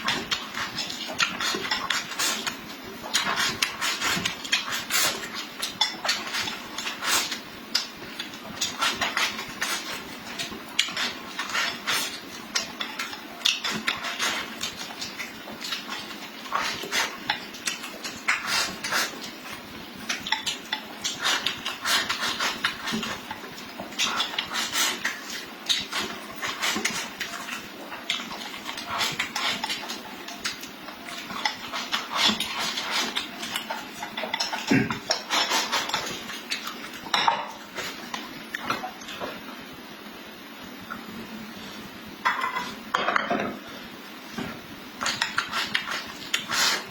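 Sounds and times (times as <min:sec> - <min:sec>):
chewing and smacking: 0:00.0 - 0:37.1.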